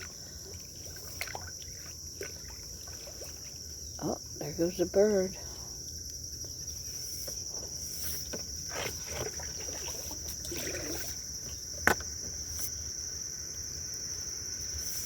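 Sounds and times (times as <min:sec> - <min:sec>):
water splashes: 0:00.0 - 0:04.2, 0:07.9 - 0:12.1
insects chirring: 0:00.0 - 0:15.0.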